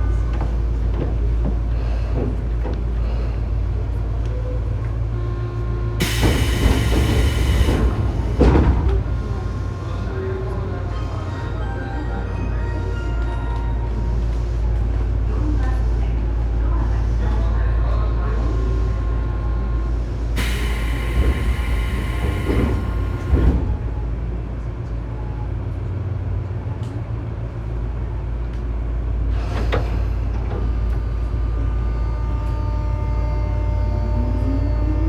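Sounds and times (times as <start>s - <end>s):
train equipment low hum: 0.0s - 16.7s, 18.2s - 35.0s
train doors closing hiss and tones: 6.0s - 10.6s, 20.4s - 24.4s
train motor whine: 6.0s - 11.2s, 20.4s - 24.4s, 30.5s - 35.0s.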